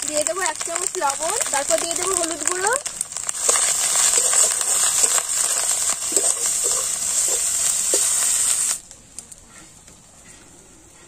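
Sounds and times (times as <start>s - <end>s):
onions sizzling in hot oil: 0.0s - 8.8s.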